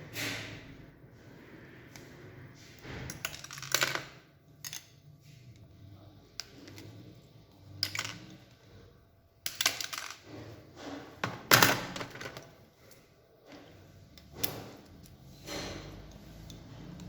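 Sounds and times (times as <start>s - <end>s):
clicks and clatter of small plastic parts: 3.0s - 5.7s, 6.4s - 8.8s, 9.4s - 17.0s.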